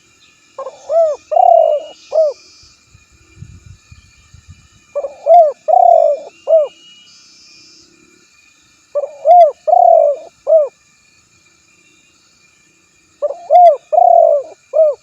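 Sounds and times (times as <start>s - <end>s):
dove cooing: 0.6s - 2.4s, 5.0s - 6.8s, 9.0s - 10.7s, 13.2s - 15.0s.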